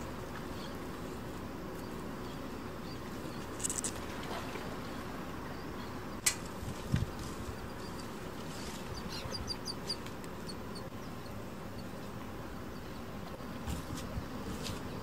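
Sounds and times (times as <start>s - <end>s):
steady outdoor hiss: 0.0s - 15.0s
small bird chirping: 7.0s - 13.0s.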